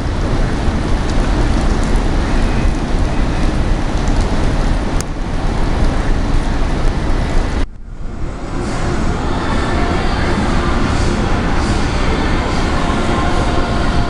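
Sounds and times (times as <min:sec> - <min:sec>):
wind buffeting microphone: 0:00.0 - 0:12.5.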